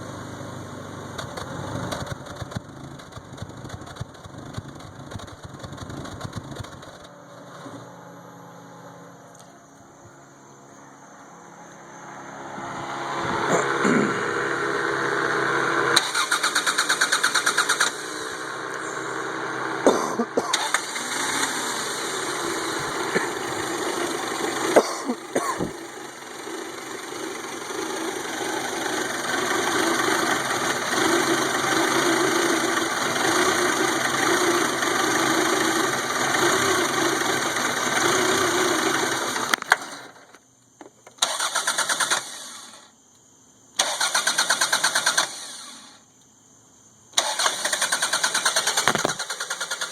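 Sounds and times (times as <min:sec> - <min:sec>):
car engine cranking: 0:00.0 - 0:08.3, 0:12.6 - 0:40.3, 0:41.1 - 0:42.8, 0:43.8 - 0:45.9, 0:47.2 - 0:49.9
car engine running: 0:00.0 - 0:09.2, 0:11.9 - 0:40.0, 0:48.1 - 0:49.9.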